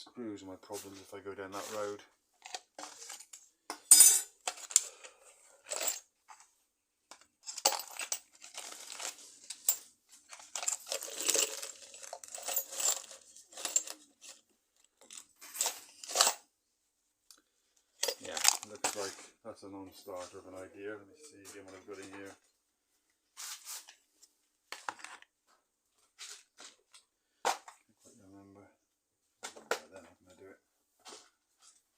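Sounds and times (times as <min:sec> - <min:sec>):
small metal hardware clinking: 0:03.2 - 0:04.8.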